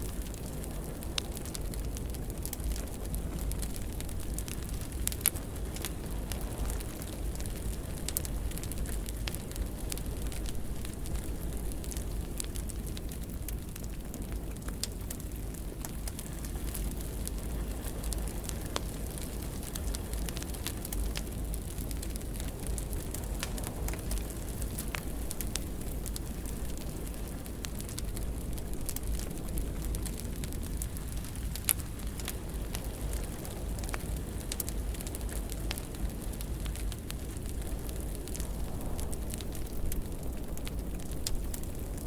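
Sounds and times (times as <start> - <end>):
wood fire crackling and popping: 0.0 - 42.0.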